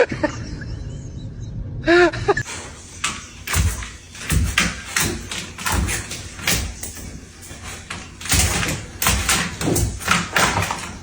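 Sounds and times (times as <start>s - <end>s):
irregular thumps and knocks: 2.4s - 11.0s.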